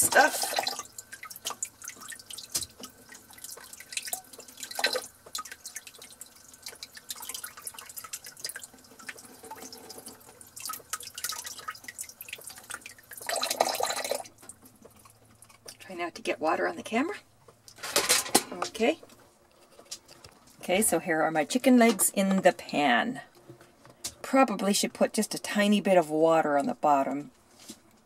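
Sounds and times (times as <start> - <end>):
water splashing in a sink: 0.0 - 17.0.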